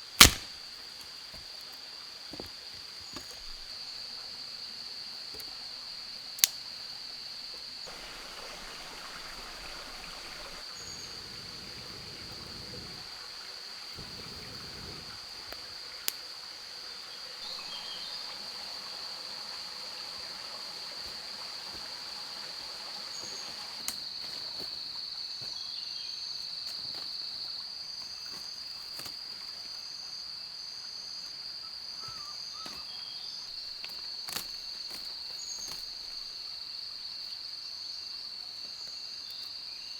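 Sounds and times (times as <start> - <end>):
insects droning: 0.0 - 39.9
sharp clicks or knocks: 0.2 - 0.5.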